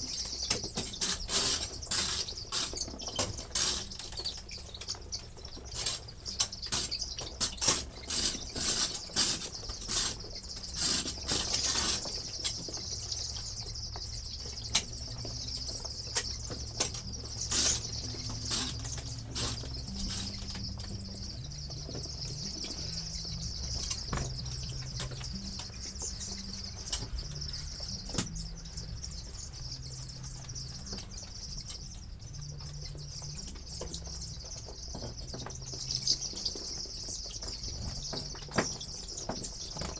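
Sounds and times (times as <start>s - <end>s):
chicks cheeping: 0.0s - 39.9s.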